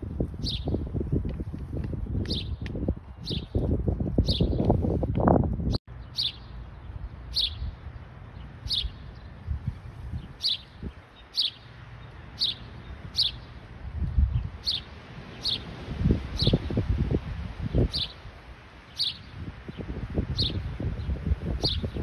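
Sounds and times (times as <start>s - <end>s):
bird chirping: 0.4s - 0.8s, 3.2s - 3.6s, 4.2s - 4.7s, 5.9s - 13.6s, 14.3s - 15.7s, 17.8s - 18.2s, 18.9s - 22.0s.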